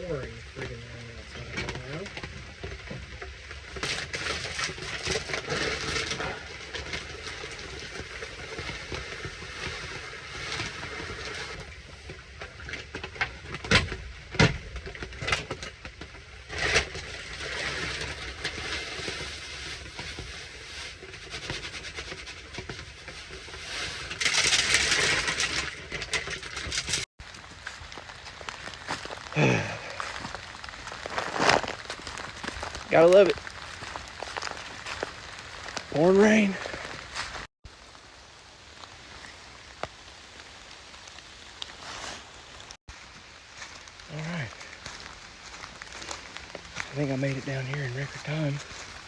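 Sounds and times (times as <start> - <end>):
rustling and scraping near microphone: 1.5 - 11.6, 16.5 - 49.0
heavy rain pattering: 27.2 - 49.0.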